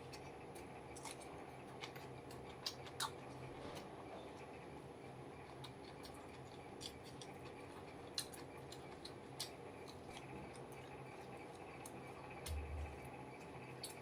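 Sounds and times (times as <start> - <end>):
person chewing: 0.0 - 3.8, 5.4 - 14.0
mouth clicks and crunches: 0.1 - 3.8, 5.5 - 12.9.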